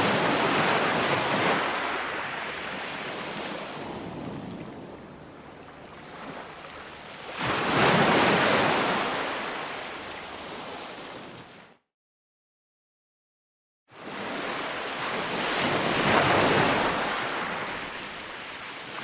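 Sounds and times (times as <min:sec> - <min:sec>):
ocean surf washing in: 0:00.0 - 0:11.0.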